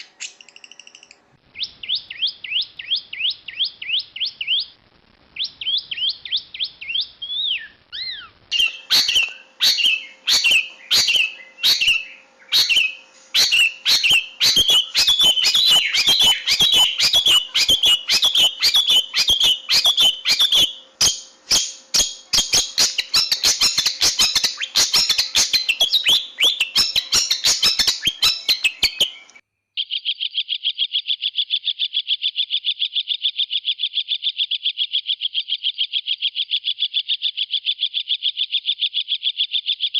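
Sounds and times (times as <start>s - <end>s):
shrike singing and chattering: 0.0s - 4.8s, 5.4s - 39.9s.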